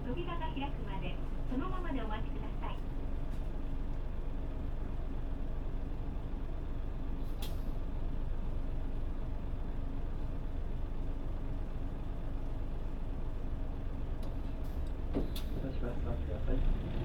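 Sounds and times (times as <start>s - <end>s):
bus diesel engine drone: 0.0s - 17.0s
road noise: 14.3s - 17.0s.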